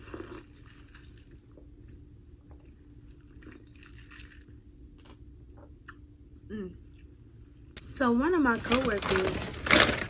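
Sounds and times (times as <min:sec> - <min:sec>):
person chewing food: 0:00.0 - 0:06.0.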